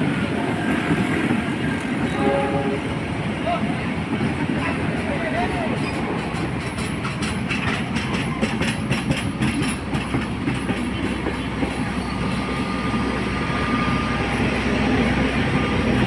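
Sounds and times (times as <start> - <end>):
low train rumble: 0.0 - 16.0
train wheels clattering over rail joints: 4.1 - 12.6.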